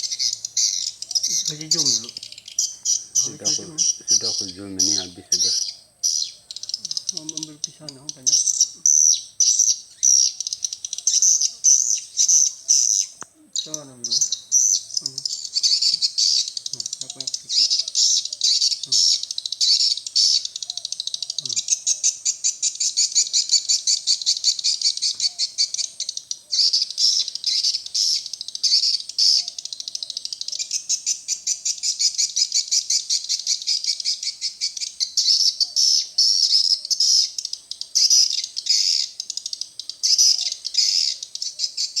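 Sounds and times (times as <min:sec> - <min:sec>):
swiftlet clicking twitters: 0:06.5 - 0:14.3.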